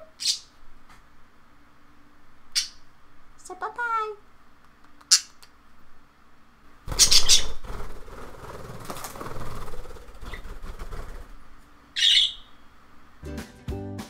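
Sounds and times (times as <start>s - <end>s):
bird rustling: 6.9s - 11.8s.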